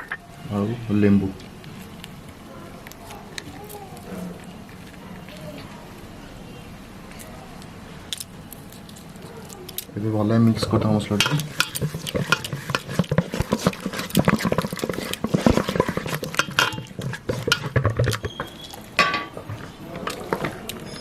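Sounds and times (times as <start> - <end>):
paste stirred and scraped in bowl: 10.5 - 21.0
utensil clinking against dish: 11.0 - 21.0.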